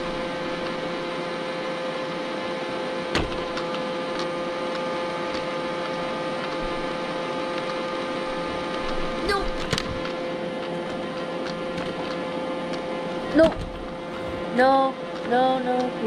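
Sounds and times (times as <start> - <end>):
sharp knock: 14.0 - 14.7.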